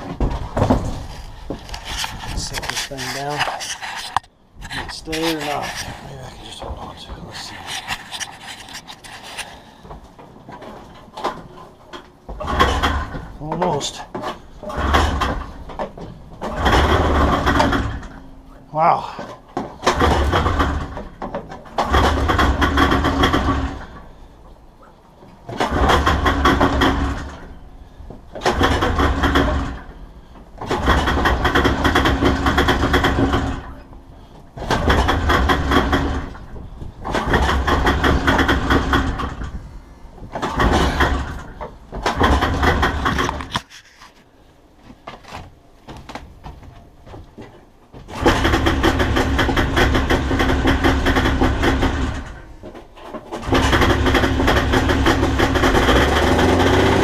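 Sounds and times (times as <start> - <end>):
snowmobile engine sputtering: 53.4 - 57.0.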